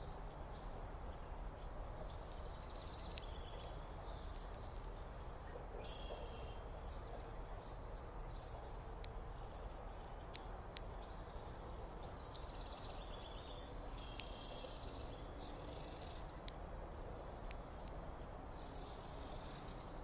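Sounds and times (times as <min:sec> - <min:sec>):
low background hiss: 0:00.0 - 0:20.0
sharp ticks: 0:01.0 - 0:05.0, 0:08.9 - 0:09.3, 0:10.0 - 0:11.4, 0:14.0 - 0:15.0, 0:15.8 - 0:16.7, 0:17.4 - 0:18.1.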